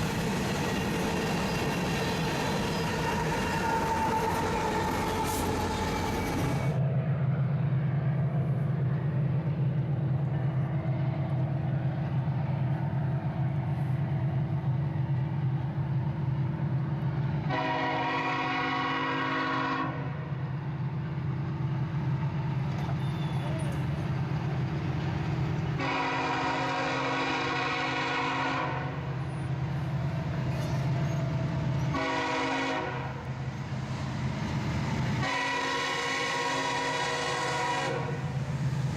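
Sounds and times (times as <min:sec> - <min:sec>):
diesel locomotive drone: 0:00.0 - 0:38.9
freight train wheel and rail noise: 0:00.0 - 0:38.9
locomotive air horn blast: 0:17.5 - 0:20.2, 0:25.8 - 0:29.0, 0:31.9 - 0:33.2, 0:35.2 - 0:38.3.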